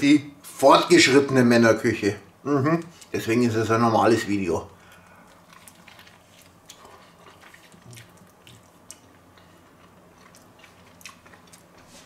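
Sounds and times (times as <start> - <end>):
person chewing food: 4.8 - 12.0.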